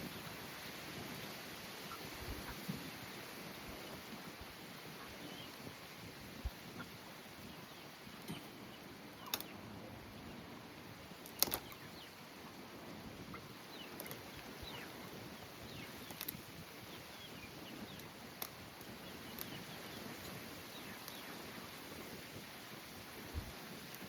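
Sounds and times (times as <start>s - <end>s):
sharp clicks: 11.2s - 11.8s
bird chirps: 18.9s - 21.4s.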